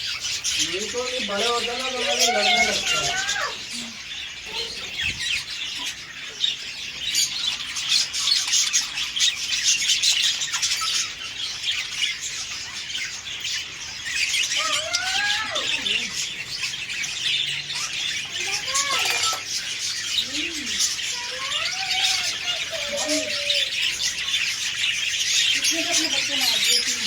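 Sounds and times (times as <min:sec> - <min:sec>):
cage birds chirping and squawking: 0:00.0 - 0:27.0.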